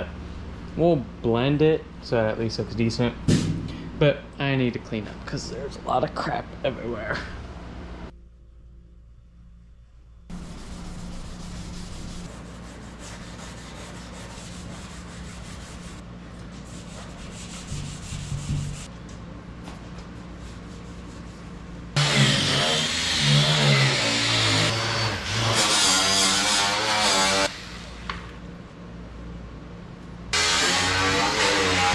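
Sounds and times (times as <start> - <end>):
hand sanding car bodywork: 10.3 - 18.9.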